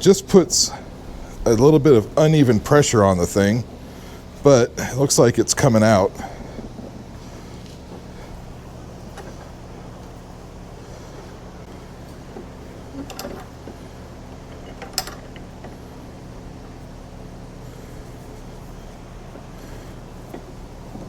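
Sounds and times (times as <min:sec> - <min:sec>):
steady low hum: 0:00.0 - 0:21.0
metallic clicks and creaks of press: 0:12.9 - 0:13.8.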